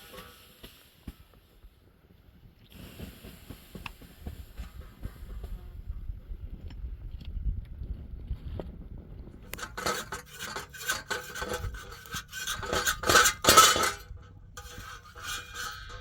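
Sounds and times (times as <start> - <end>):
metal cookware clinking and scraping: 9.5 - 16.0.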